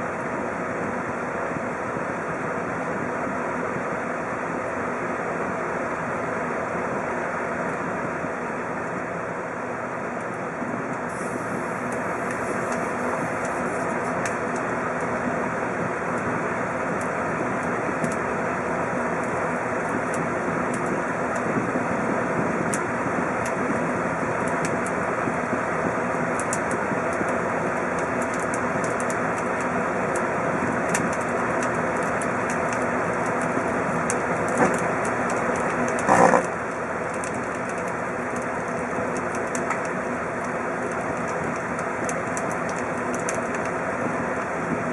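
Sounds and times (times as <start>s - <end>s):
microwave oven humming: 0.0s - 44.9s
electrical crackling: 25.9s - 44.9s.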